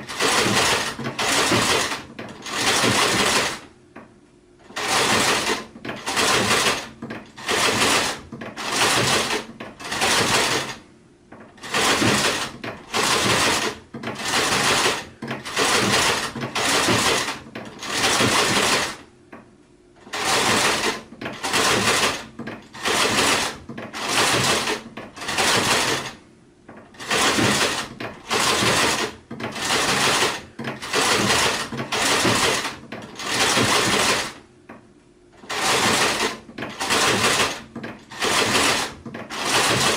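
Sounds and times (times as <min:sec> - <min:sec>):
sewing machine stitching: 0:00.0 - 0:03.7, 0:04.6 - 0:19.1, 0:20.0 - 0:26.2, 0:26.8 - 0:34.4, 0:35.4 - 0:39.9.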